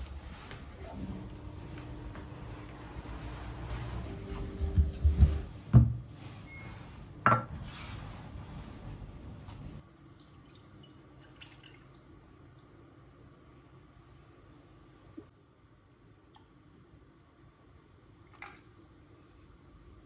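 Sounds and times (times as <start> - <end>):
tableware knocking and clinking: 7.2 - 7.5.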